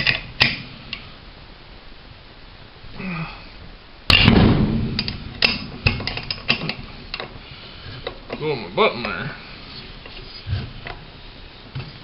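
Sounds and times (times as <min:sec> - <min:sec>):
sharp knock with rattle: 0:04.1 - 0:06.3.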